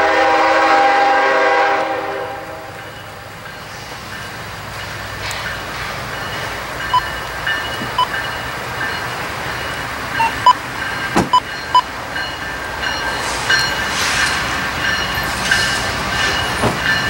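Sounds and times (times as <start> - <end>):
train rumbling over rails: 0.0 - 17.0
sharp metallic pings and clicks: 6.2 - 13.9.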